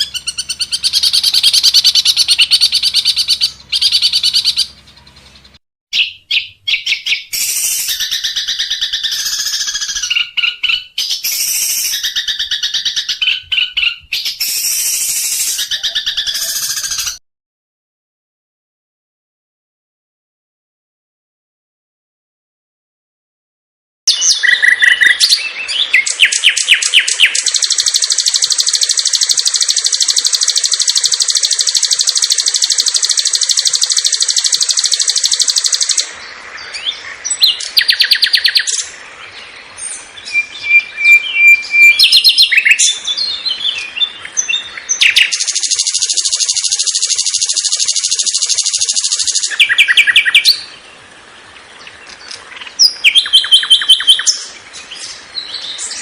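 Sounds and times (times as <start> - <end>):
bird chirps and whistles: 0.0 - 4.8, 5.9 - 17.2, 24.1 - 36.1, 36.8 - 38.9, 40.2 - 50.7, 52.8 - 54.5
bird buzzy trills: 0.0 - 17.2, 24.3 - 38.9, 44.7 - 50.7.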